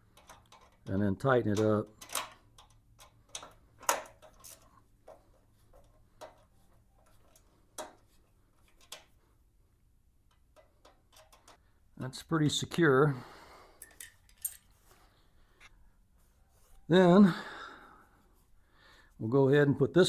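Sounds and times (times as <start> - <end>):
metallic clicks of hand tools: 0.0 - 5.2, 10.3 - 11.6.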